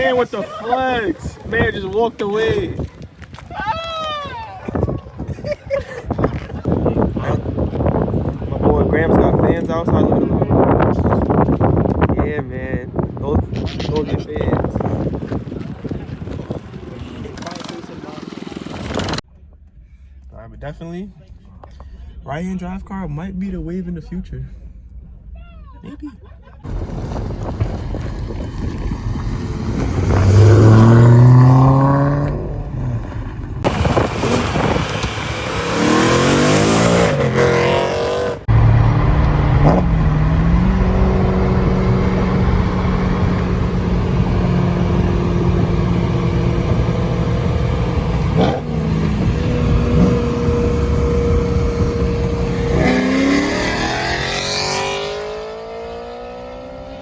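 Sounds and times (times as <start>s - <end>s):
car engines revving: 26.6s - 57.0s.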